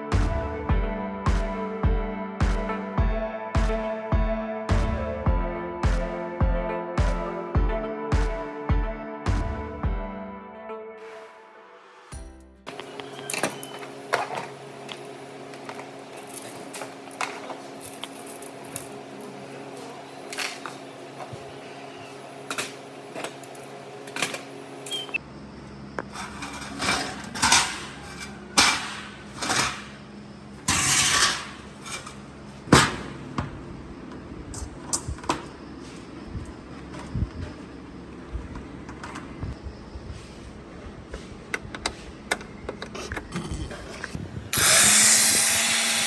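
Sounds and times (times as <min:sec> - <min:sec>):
steady low hum: 0:12.7 - 0:46.0.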